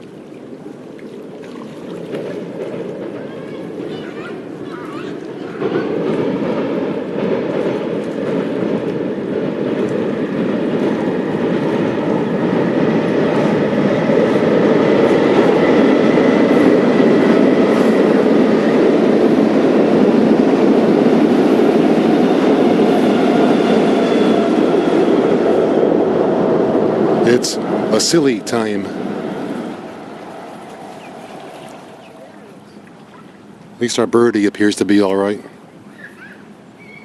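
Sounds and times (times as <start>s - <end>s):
train wheels rumbling on track: 2.1s - 32.9s
faint high squeals: 35.9s - 37.0s.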